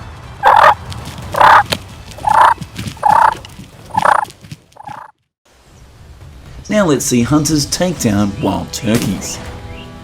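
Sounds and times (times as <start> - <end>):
wild turkey calling: 0.4 - 0.8, 1.4 - 1.6, 2.2 - 4.2.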